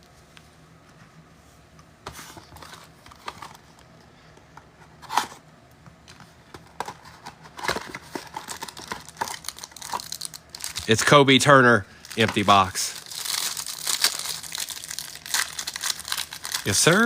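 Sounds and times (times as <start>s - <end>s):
plastic wrapper tearing: 7.6s - 11.0s, 12.0s - 17.0s
plastic wrapper crinkling: 7.6s - 11.2s, 11.9s - 17.0s.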